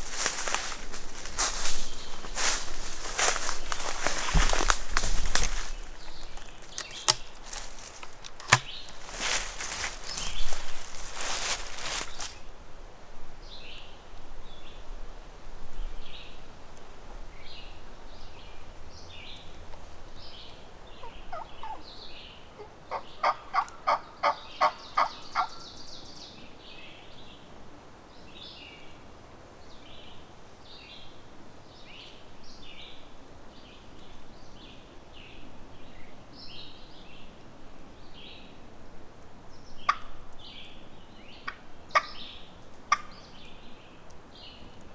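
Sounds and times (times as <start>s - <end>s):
songbirds chirping: 0.0s - 12.6s, 15.7s - 44.9s
turkey yelps: 41.5s - 42.2s.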